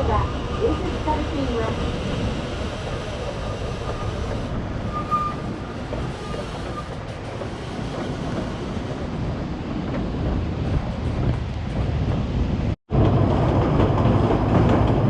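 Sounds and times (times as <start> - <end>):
train carriage rumbling: 0.0 - 15.0
thin squeal: 3.9 - 5.5.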